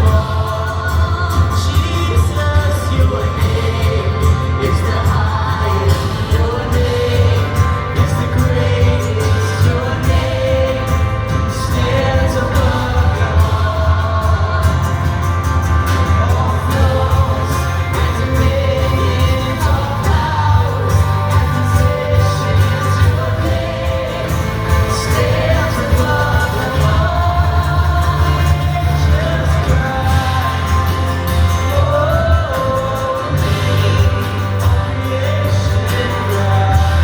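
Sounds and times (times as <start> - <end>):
band with steady bass: 0.0 - 37.0
congregation singing: 0.0 - 37.0.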